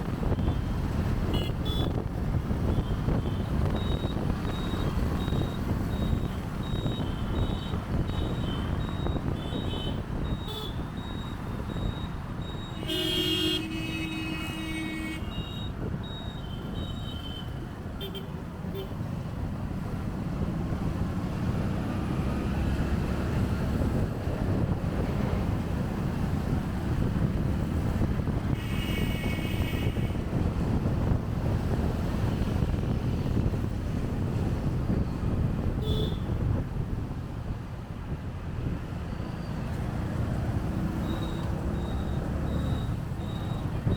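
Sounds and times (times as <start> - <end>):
wind buffeting microphone: 0.0 - 12.6, 19.4 - 39.1
vehicle horn honking: 1.3 - 1.9, 12.8 - 15.7, 28.5 - 30.3, 35.8 - 36.4.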